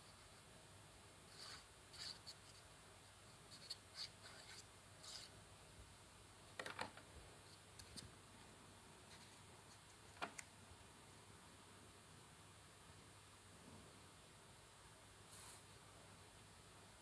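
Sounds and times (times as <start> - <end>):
paper rustling and rubbing: 1.3 - 2.6, 3.5 - 5.4.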